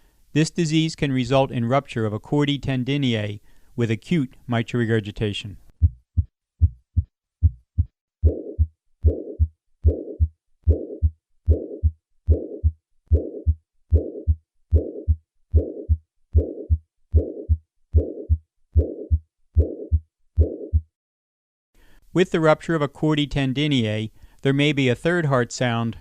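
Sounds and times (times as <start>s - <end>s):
whooshing heart murmur: 5.8s - 19.8s
heartbeat lub-dub: 5.8s - 21.0s.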